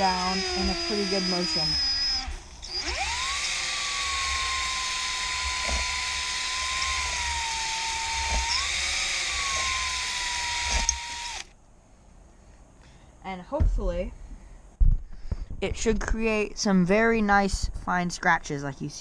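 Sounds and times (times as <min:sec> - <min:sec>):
electric drill whining: 0:00.0 - 0:11.5.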